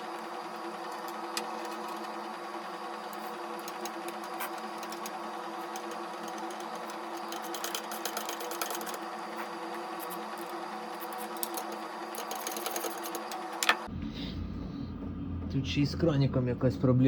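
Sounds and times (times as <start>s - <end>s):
steady mechanical hum: 0.0s - 17.0s
small metal parts clicking: 3.6s - 9.0s, 10.0s - 13.8s.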